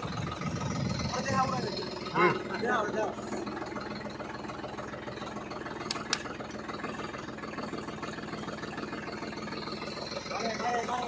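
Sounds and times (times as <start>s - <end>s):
tractor engine idling: 0.0s - 11.0s
sharp clicks: 5.8s - 6.4s.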